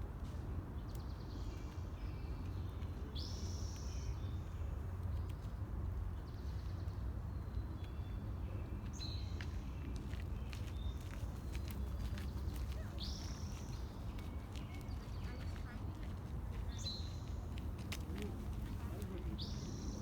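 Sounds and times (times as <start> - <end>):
small birds chirping: 8.8 - 20.0.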